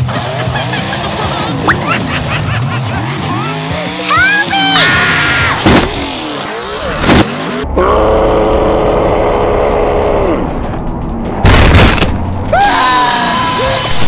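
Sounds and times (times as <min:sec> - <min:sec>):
truck crashing impact: 0:11.4 - 0:12.2.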